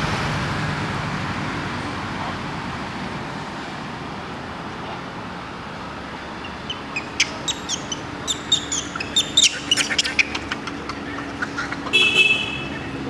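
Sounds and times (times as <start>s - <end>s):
traffic hum: 0.0s - 13.0s
high-pitched chirping calls: 6.2s - 13.0s.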